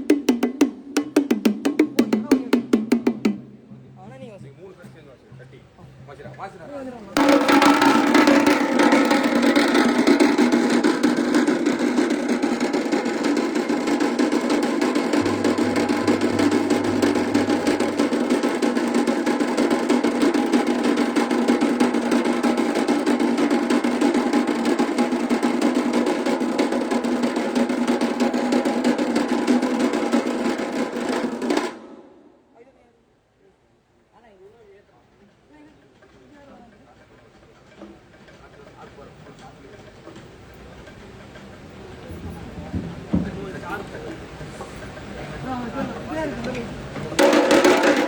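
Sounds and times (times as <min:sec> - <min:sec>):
rapid drum roll: 0:07.2 - 0:31.9, 0:41.9 - 0:44.4, 0:47.2 - 0:48.0.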